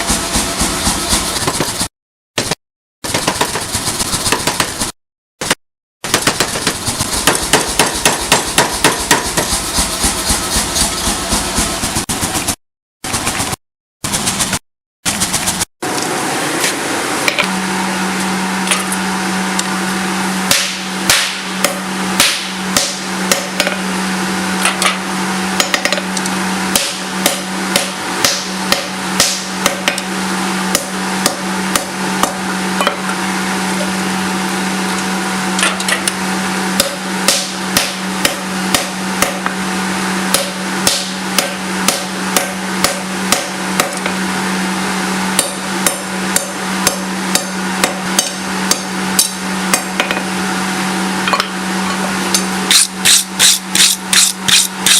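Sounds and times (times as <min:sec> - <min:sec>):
hammer striking steel on anvil: 0:20.5 - 0:23.8, 0:25.6 - 0:26.1, 0:26.7 - 0:30.1, 0:36.8 - 0:39.6, 0:40.3 - 0:44.1, 0:45.4 - 0:50.2.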